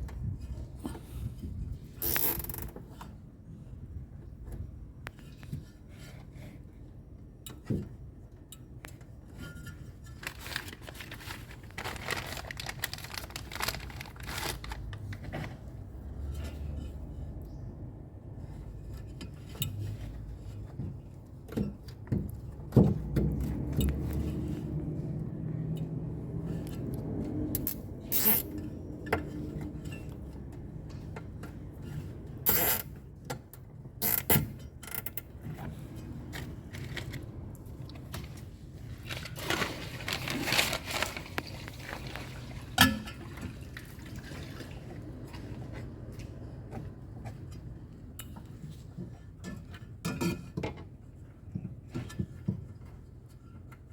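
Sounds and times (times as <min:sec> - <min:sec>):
scraping and rustling: 0:09.3 - 0:21.8, 0:34.9 - 0:43.7.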